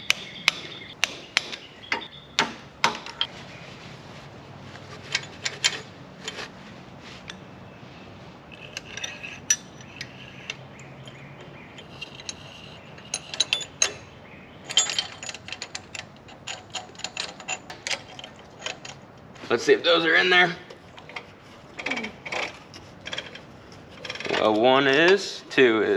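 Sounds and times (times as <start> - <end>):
metal tools clinking: 4.8 - 6.5, 8.5 - 19.0.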